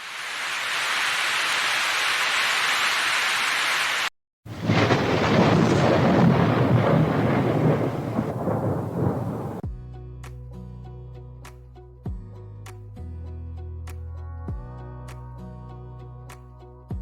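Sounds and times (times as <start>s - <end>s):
heavy rain: 0.0s - 9.6s
rain hissing: 0.0s - 9.6s
thunder rumble: 4.5s - 9.6s.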